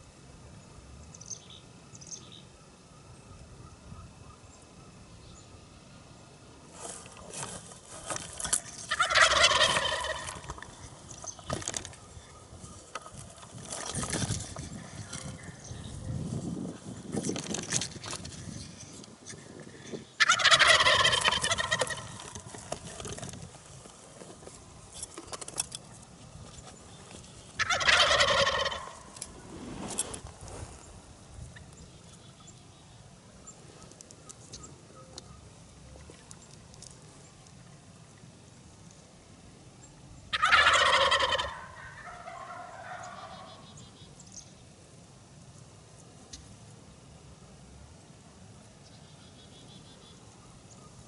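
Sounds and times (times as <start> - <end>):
turkeys gobbling: 8.7 - 13.4, 20.2 - 23.3, 27.5 - 29.2, 40.3 - 44.0.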